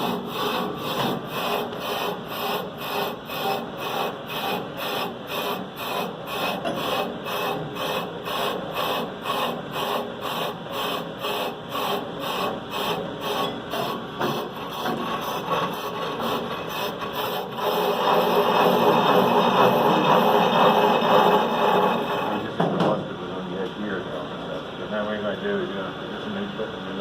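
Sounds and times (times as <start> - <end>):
lathe bit scraping metal rotor: 0.0 - 22.5.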